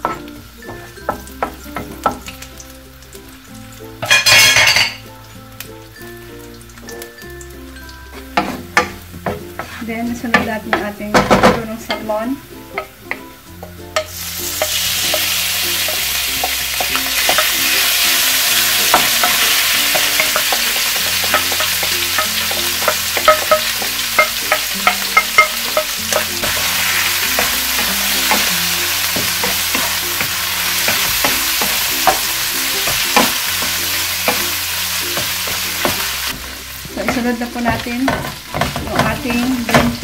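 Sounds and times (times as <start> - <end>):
fish sizzling in oil: 0.0 - 40.0
wooden spoon scraping pan: 8.2 - 10.8.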